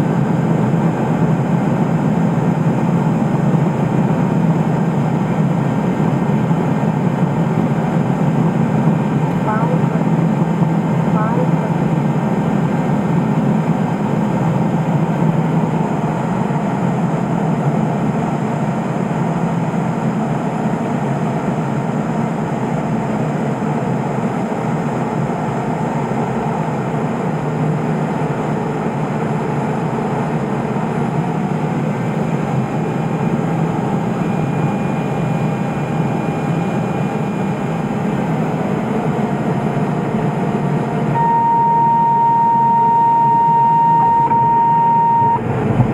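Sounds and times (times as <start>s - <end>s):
aircraft engine and propeller: 0.0s - 45.9s
steady single tone: 41.1s - 45.9s.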